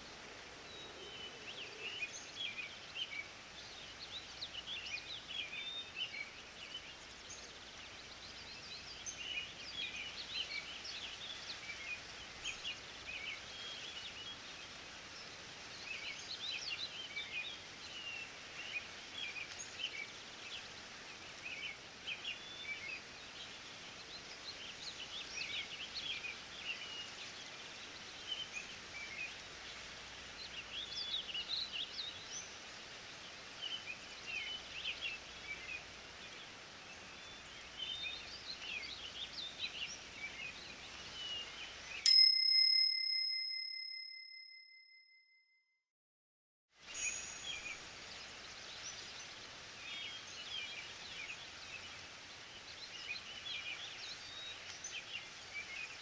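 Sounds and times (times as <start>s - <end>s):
steady hiss: 0.0s - 42.0s, 46.8s - 56.0s
small birds chirping: 0.0s - 42.1s, 46.9s - 56.0s
timer bell ringing: 42.1s - 45.0s, 47.0s - 48.0s.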